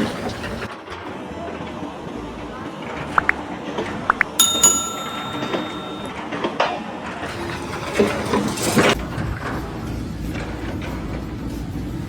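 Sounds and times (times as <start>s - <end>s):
metal clang ringing: 4.4s - 6.1s.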